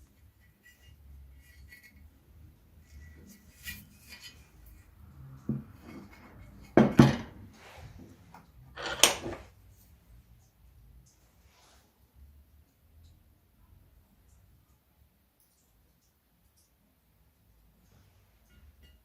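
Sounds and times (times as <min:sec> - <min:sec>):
metal parts clinking: 0:08.8 - 0:09.4.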